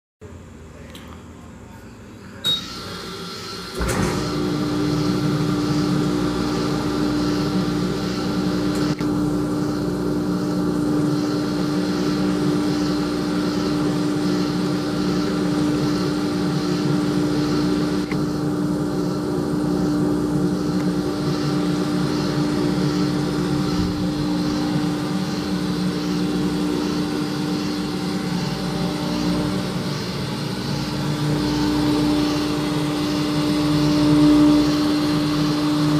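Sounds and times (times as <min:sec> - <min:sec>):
dishwasher motor humming: 0:02.2 - 0:35.9
dishwasher rushing noise: 0:03.7 - 0:04.6.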